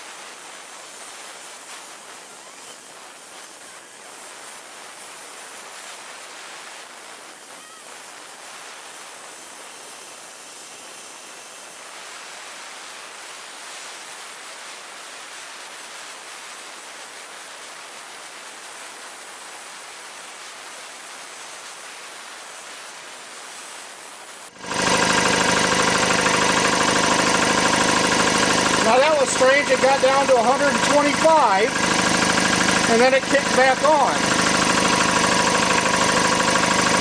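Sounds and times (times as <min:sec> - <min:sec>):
steady hiss: 0:00.0 - 0:24.5
air compressor motor and pump: 0:00.0 - 0:37.0.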